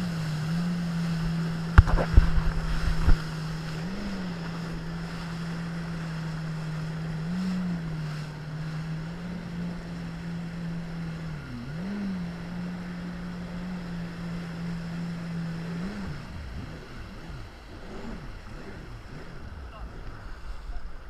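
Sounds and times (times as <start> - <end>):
jet ski engine running: 0.0 - 21.0
wind: 0.0 - 21.0.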